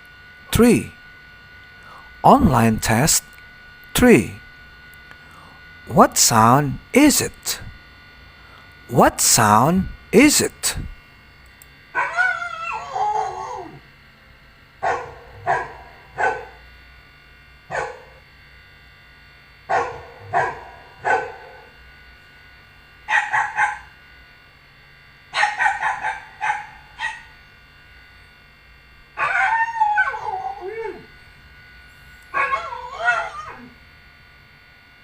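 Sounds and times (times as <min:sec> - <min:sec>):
dog barking: 0:12.0 - 0:12.9, 0:14.8 - 0:16.6, 0:17.7 - 0:18.2, 0:19.7 - 0:21.7, 0:23.1 - 0:23.9, 0:25.4 - 0:27.3, 0:32.4 - 0:33.7.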